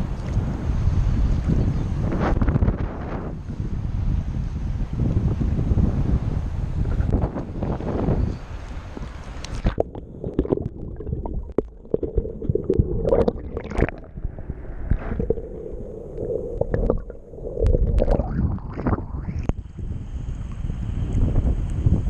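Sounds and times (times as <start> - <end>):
water gurgling and sloshing: 6.8 - 21.2
water splashes: 8.6 - 19.6.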